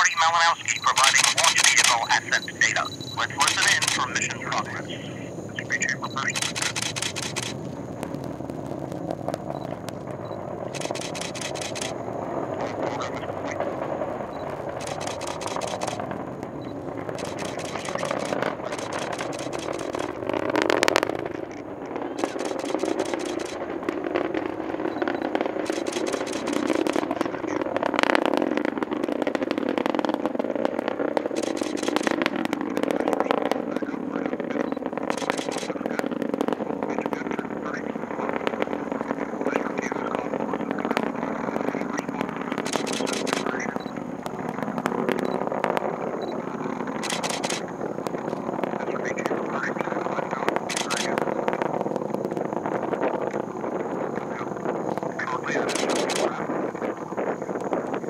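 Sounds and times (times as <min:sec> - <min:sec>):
rocket engine roar: 0:00.0 - 0:58.0
rapid camera shutter clicks: 0:00.9 - 0:02.2, 0:03.4 - 0:04.2, 0:06.3 - 0:07.6, 0:10.7 - 0:12.0, 0:14.7 - 0:16.0, 0:17.2 - 0:20.2, 0:22.2 - 0:23.6, 0:25.6 - 0:27.0, 0:31.3 - 0:32.2, 0:35.1 - 0:35.8, 0:42.6 - 0:43.6, 0:47.0 - 0:47.7, 0:50.7 - 0:51.1, 0:55.5 - 0:56.4.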